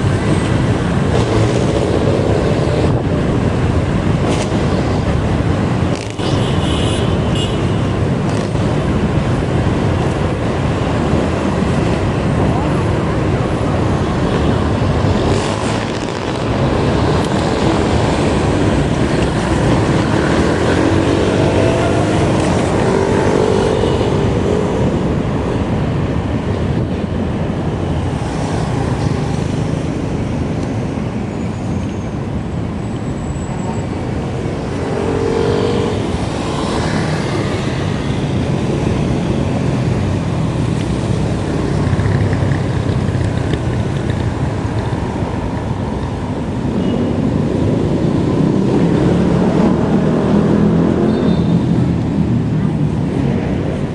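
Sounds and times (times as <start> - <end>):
wind and road noise: 0.0 - 53.9.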